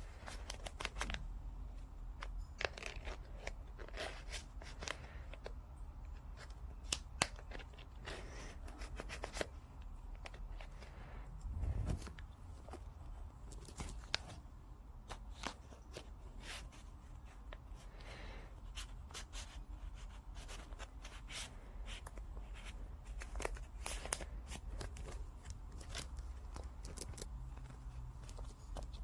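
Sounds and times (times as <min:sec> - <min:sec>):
low steady rumble: 0:10.5 - 0:15.0.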